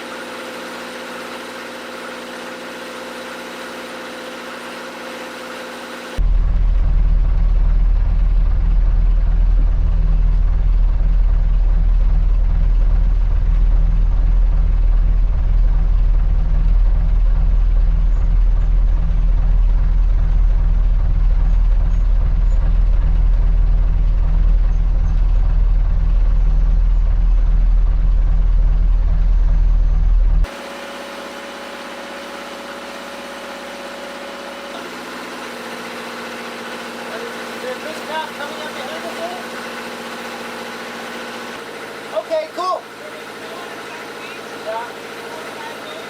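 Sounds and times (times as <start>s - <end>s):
boat engine droning: 0.0s - 46.0s.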